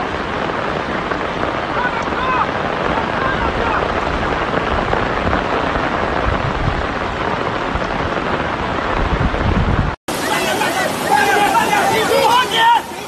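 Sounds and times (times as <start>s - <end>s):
heavy rain on floodwater: 0.0s - 13.0s.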